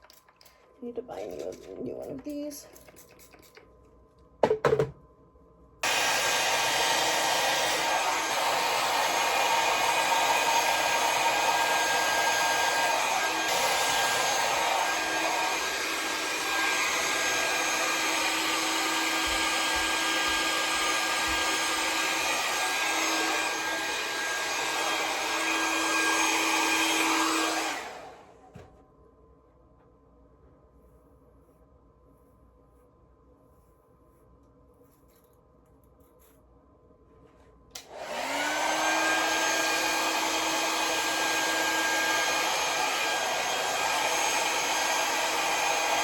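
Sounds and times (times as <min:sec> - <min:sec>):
hair dryer blowing: 0:05.8 - 0:28.7, 0:37.7 - 0:46.0.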